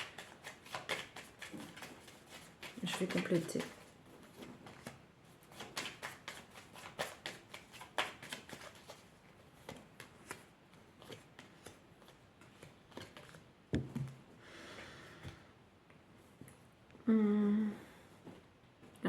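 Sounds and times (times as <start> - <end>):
cards being shuffled: 0.0 - 14.2.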